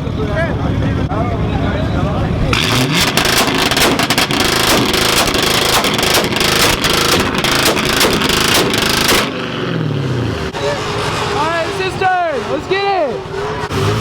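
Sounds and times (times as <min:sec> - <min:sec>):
exhaust popping bangs: 0:02.3 - 0:11.6.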